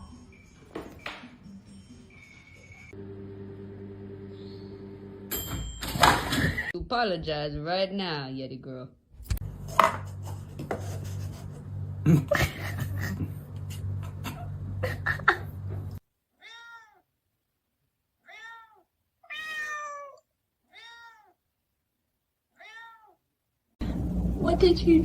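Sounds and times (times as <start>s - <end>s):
steady low hum: 9.3s - 16.0s, 23.8s - 25.0s
cat meowing: 16.4s - 17.1s, 18.2s - 21.4s, 22.5s - 23.2s.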